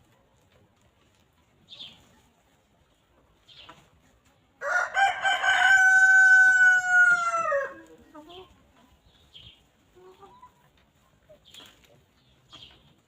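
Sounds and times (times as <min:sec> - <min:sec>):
rooster crowing: 0:04.6 - 0:07.8.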